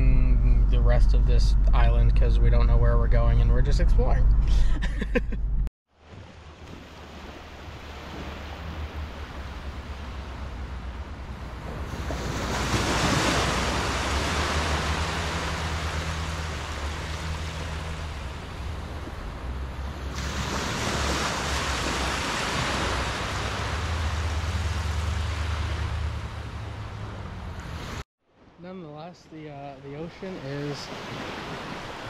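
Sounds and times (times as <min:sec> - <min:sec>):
small waves washing up a beach: 0:05.9 - 0:28.5, 0:30.0 - 0:32.0.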